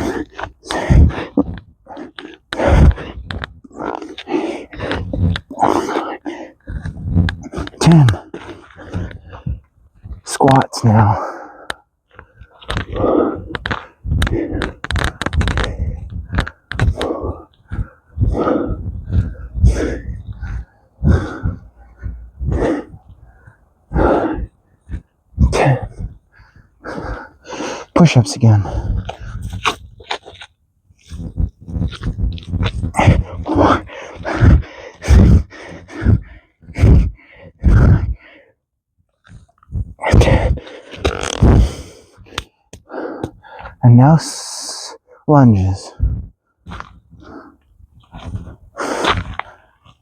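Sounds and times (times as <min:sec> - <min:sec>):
man grunting and breathing hard: 0:00.0 - 0:11.8, 0:12.7 - 0:29.6, 0:32.9 - 0:38.4, 0:40.0 - 0:43.8
man exhaling forcefully: 0:15.4 - 0:26.2, 0:32.9 - 0:38.2, 0:41.4 - 0:42.0.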